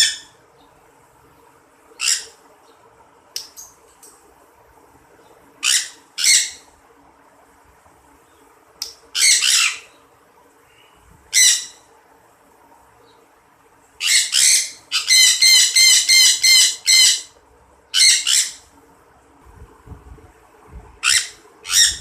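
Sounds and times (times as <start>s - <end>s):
faint low hum: 0.0s - 22.0s
birds squawking harshly: 1.9s - 2.4s, 5.6s - 6.7s, 9.1s - 10.0s, 10.8s - 11.9s, 14.0s - 18.7s, 21.0s - 22.0s.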